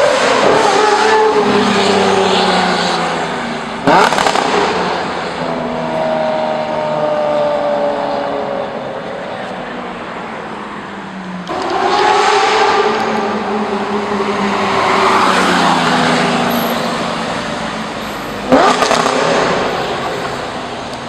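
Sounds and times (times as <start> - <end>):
car engine driving away: 11.4 - 21.0.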